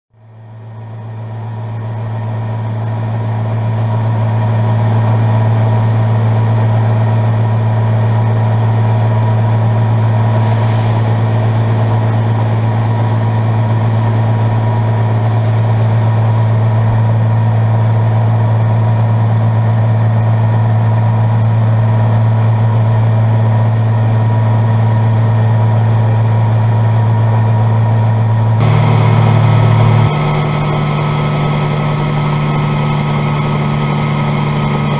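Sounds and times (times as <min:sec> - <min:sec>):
helicopter engine and rotor drone: 0:00.4 - 0:34.9.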